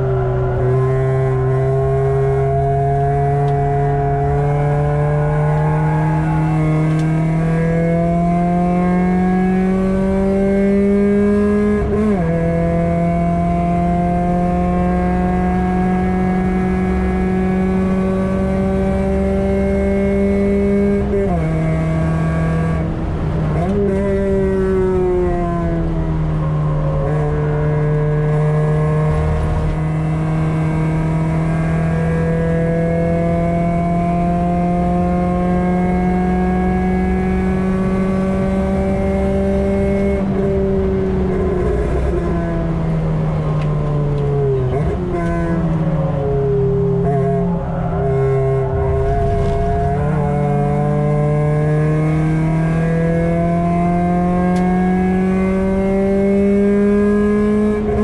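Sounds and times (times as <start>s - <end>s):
car engine accelerating hard: 0.0s - 58.0s.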